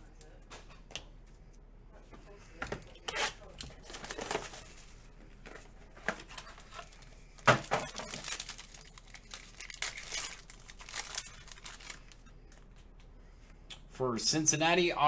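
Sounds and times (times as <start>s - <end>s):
plastic wrapping crinkling: 3.8s - 5.0s, 6.2s - 12.6s.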